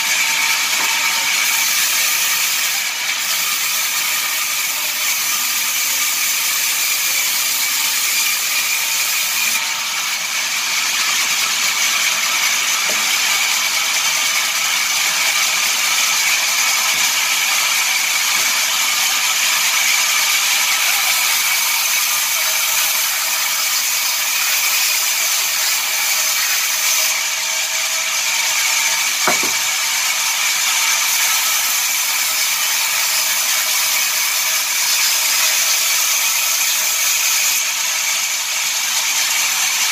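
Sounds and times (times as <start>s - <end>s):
sawmill machinery whirring: 0.0s - 39.9s.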